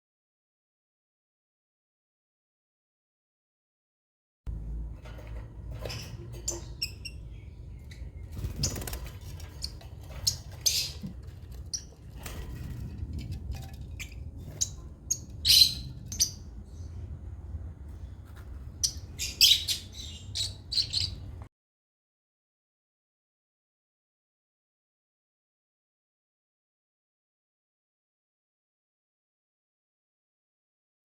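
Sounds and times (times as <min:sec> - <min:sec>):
low background hum: 0:04.5 - 0:21.5
lovebirds chirping and squawking: 0:04.6 - 0:17.3, 0:17.9 - 0:21.5.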